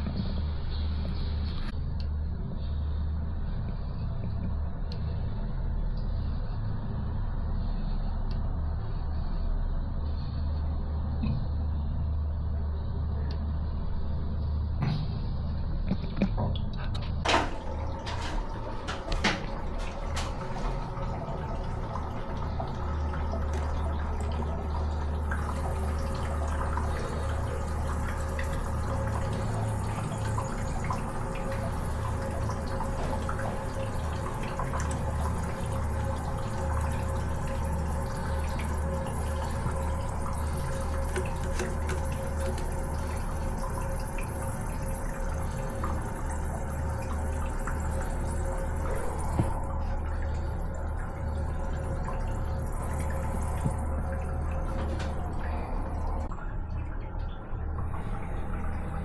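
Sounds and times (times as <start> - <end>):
steady low hum: 0.0 - 59.0
water running from tap: 17.3 - 59.0.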